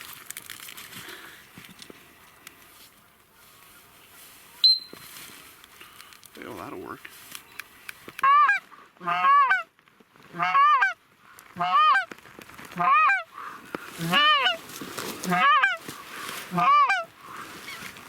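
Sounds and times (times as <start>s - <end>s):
goose honking: 8.2s - 9.7s, 10.3s - 11.0s, 11.6s - 12.1s, 12.8s - 13.3s, 14.0s - 14.6s, 15.2s - 15.8s, 16.5s - 17.1s.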